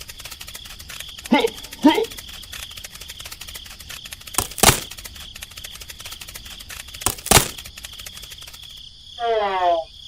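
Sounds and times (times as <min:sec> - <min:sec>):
sharp knocks: 0:04.4 - 0:05.0, 0:07.0 - 0:07.7.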